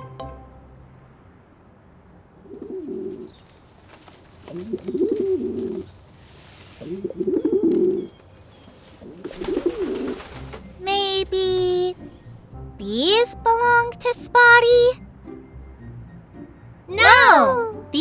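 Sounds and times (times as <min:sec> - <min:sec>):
pigeon cooing: 0:04.5 - 0:05.9, 0:09.2 - 0:10.8.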